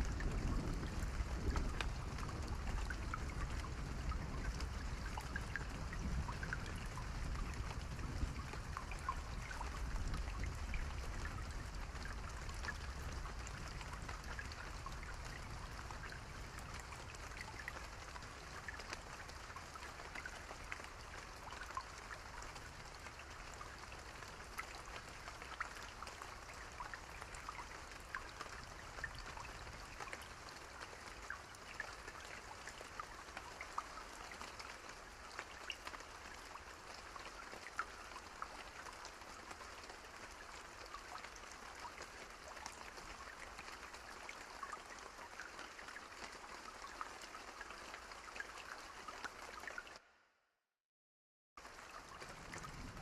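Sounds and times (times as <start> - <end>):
hiss of rainfall: 0.0 - 50.0, 51.6 - 53.0.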